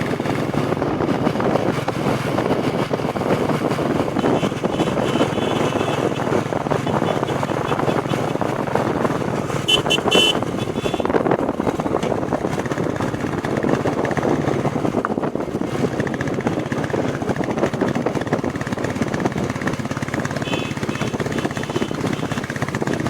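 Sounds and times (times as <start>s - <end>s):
single-cylinder engine pulsing: 0.0s - 23.0s
short high horn beeps: 9.7s - 11.1s.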